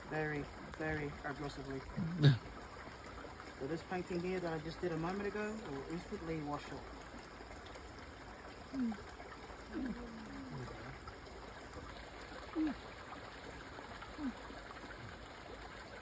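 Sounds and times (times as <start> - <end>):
water trickling: 0.0 - 16.0.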